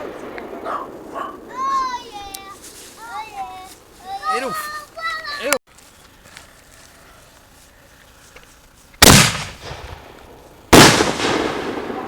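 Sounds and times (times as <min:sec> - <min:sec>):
loud firework bangs: 0:00.0 - 0:02.3, 0:09.0 - 0:12.0.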